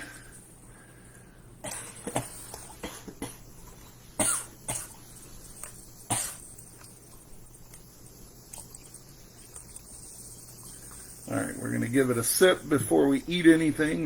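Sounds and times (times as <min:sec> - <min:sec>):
person coughing: 0:01.6 - 0:03.4, 0:04.2 - 0:05.0, 0:06.1 - 0:06.4.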